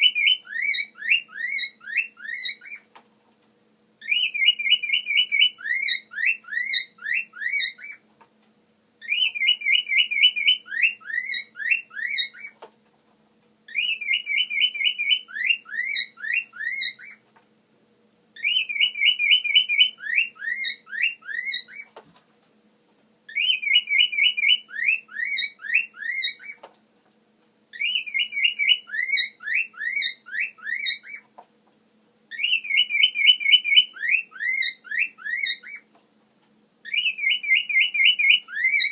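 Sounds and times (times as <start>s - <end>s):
cockatiel whistling: 0.0s - 2.9s, 4.0s - 8.0s, 9.0s - 12.6s, 13.7s - 17.2s, 18.4s - 21.9s, 23.3s - 26.6s, 27.7s - 31.2s, 32.3s - 35.9s, 36.8s - 38.9s.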